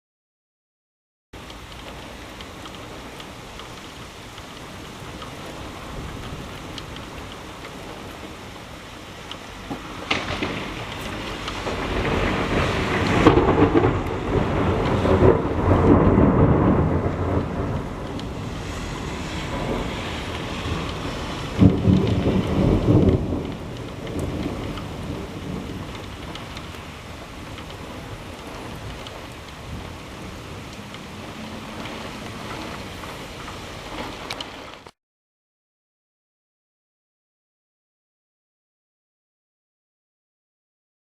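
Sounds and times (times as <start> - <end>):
thunder rumbling: 1.4 - 34.4
rain falling: 1.4 - 35.0.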